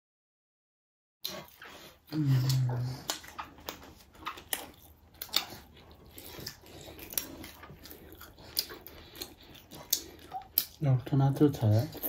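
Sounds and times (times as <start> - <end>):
chewing and biting: 1.2 - 12.0
crisp clicks and smacks: 2.4 - 5.6.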